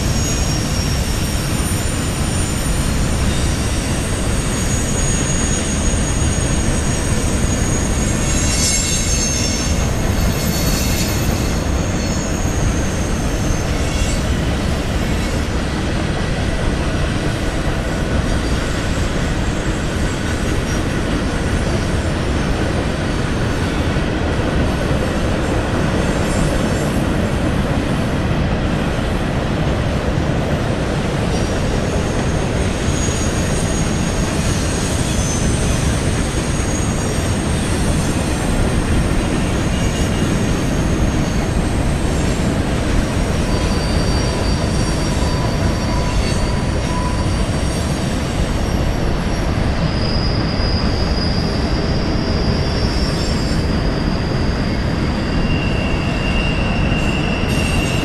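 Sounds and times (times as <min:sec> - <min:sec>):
wheel squeal: 0:00.0 - 0:15.8, 0:31.2 - 0:58.0
train cars rolling past: 0:00.0 - 0:58.0.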